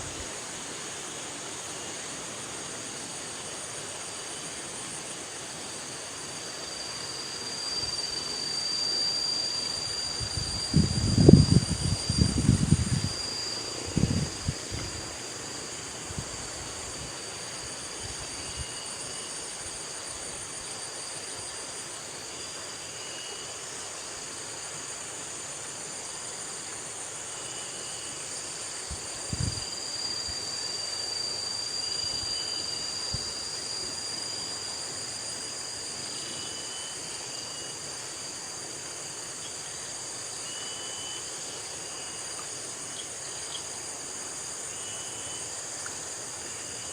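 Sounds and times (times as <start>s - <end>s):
high-pitched insect drone: 0.0s - 46.9s.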